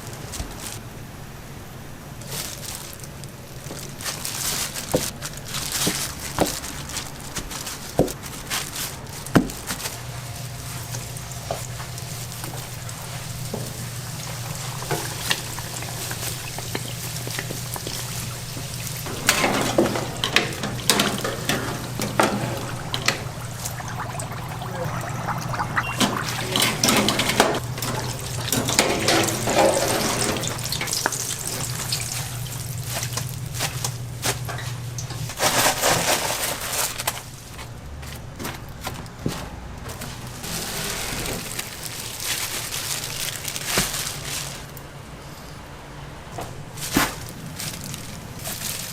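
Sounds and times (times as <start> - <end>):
low machine hum: 9.0 - 35.8
water running and splashing: 9.2 - 35.8.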